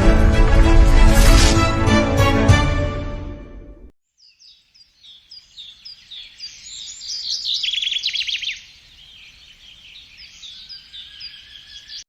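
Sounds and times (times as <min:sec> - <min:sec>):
bird chirping: 0:04.0 - 0:12.0
bird trilling: 0:04.2 - 0:12.0.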